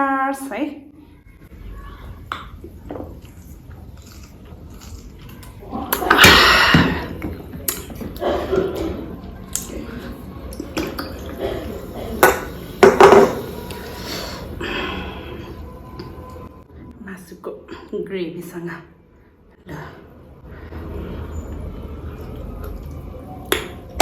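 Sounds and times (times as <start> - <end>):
person drinking: 9.6 - 15.4.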